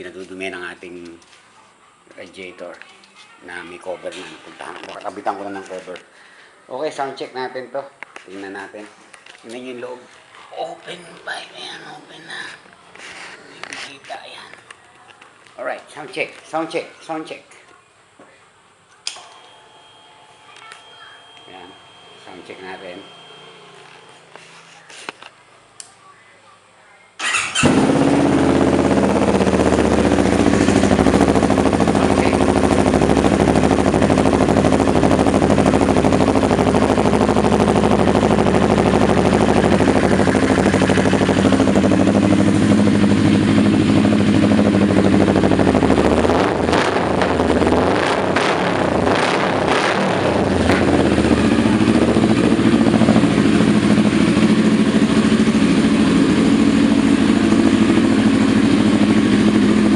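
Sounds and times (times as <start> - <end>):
motorcycle engine idling: 27.2 - 47.8, 50.2 - 59.9
exhaust cracks: 27.2 - 59.9.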